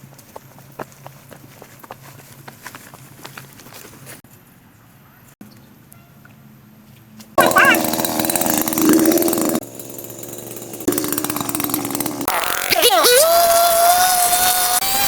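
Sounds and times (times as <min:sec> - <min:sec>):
motorised power tool running: 0:07.4 - 0:15.0.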